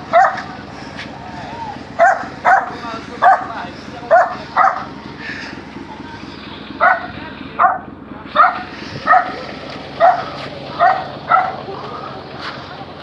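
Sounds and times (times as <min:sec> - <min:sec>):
dog barking: 0:00.1 - 0:00.5, 0:02.0 - 0:04.9, 0:06.8 - 0:09.4, 0:10.0 - 0:11.7.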